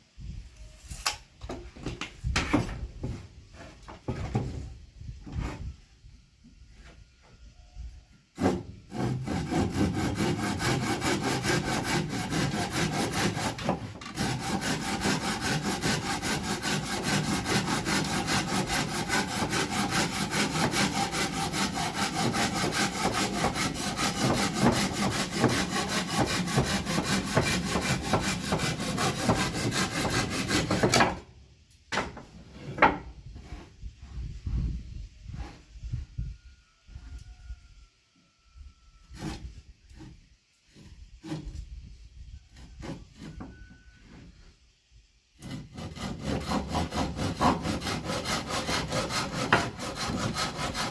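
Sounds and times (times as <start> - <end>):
wood being sawn: 8.4 - 31.2, 39.1 - 41.6, 42.6 - 43.6, 45.4 - 50.9.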